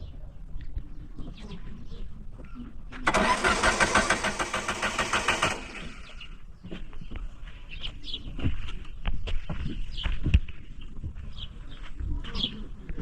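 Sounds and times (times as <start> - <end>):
machine motor pulsing: 3.1 - 6.2.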